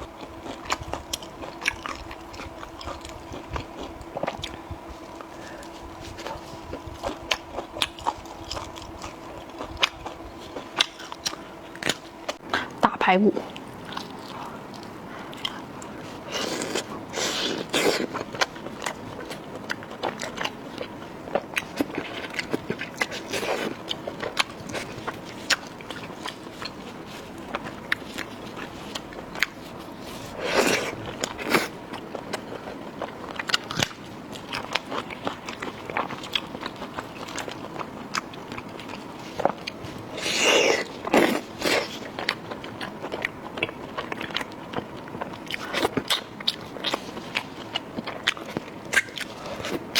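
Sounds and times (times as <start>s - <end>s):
wet chewing and mouth clicks: 0.0s - 12.8s, 13.5s - 49.9s.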